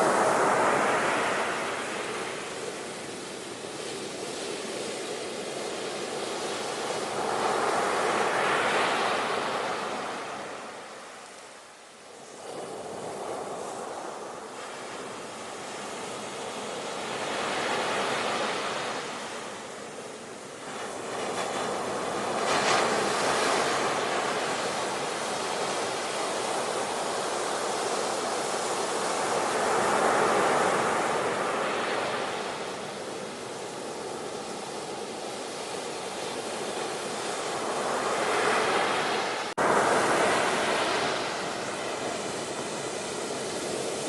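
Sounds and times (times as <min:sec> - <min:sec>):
ocean waves breaking: 0:00.0 - 0:11.3, 0:12.3 - 0:44.0.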